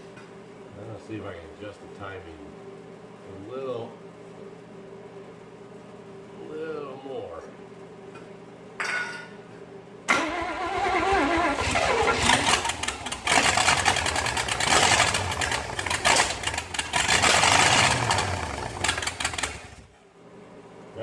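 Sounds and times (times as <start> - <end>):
car engine starting and running: 10.1 - 19.9.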